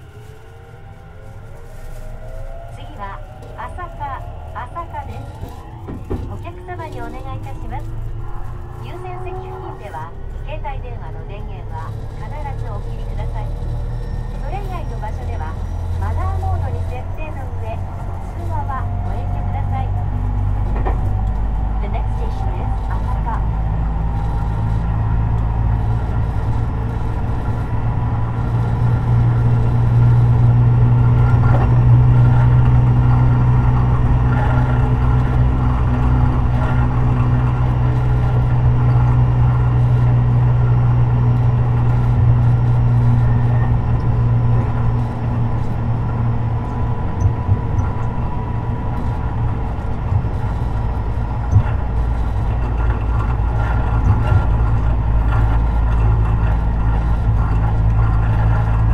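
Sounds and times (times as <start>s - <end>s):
wheels rumbling on rail: 0.0s - 58.9s.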